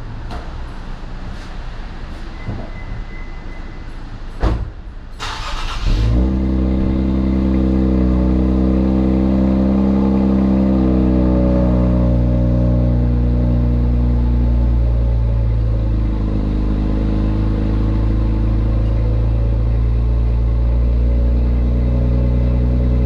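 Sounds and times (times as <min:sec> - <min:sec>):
car engine cranking and starting: 0:05.1 - 0:09.8
loud car engine idling: 0:05.4 - 0:23.0.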